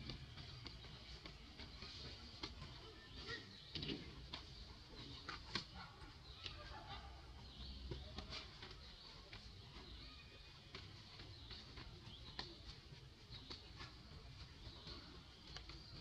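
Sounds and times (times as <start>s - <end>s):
birds calling: 0.0s - 16.0s
light clicks and rustles: 0.0s - 16.0s.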